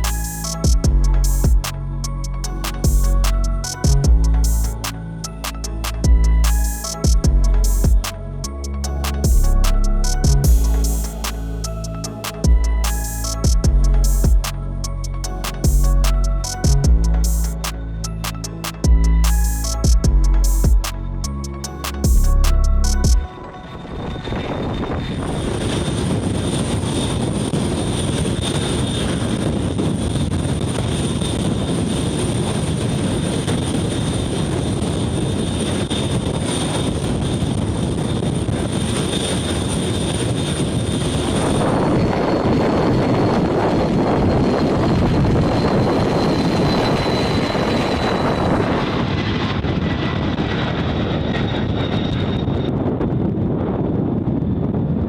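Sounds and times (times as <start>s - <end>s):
aircraft turbine engines running: 23.4s - 55.0s.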